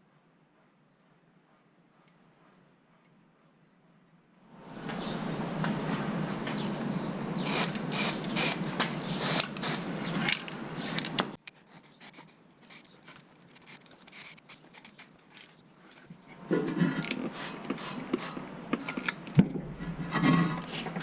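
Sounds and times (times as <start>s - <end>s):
hand tool scraping a surface: 19.7s - 21.0s.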